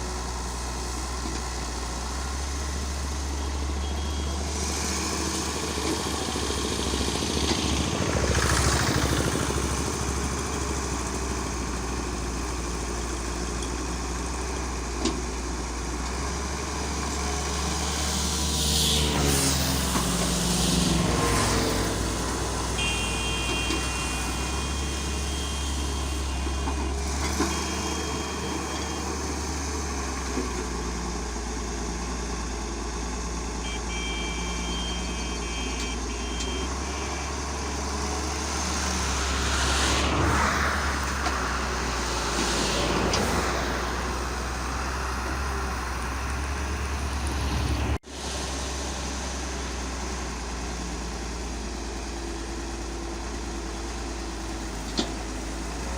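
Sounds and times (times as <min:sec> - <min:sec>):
heavy diesel engine running: 0:00.0 - 0:55.9
rushing noise: 0:38.1 - 0:48.0.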